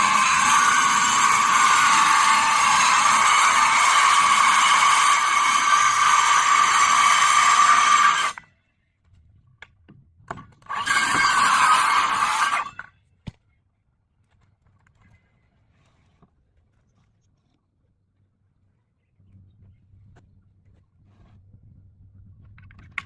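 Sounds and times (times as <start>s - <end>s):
circular saw cutting wood: 0.0s - 8.4s, 10.6s - 12.9s.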